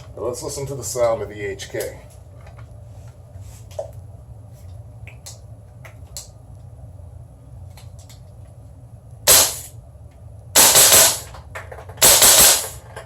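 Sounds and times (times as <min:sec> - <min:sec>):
airsoft rifle shot: 0:09.3 - 0:09.7, 0:10.6 - 0:11.3, 0:12.0 - 0:12.8.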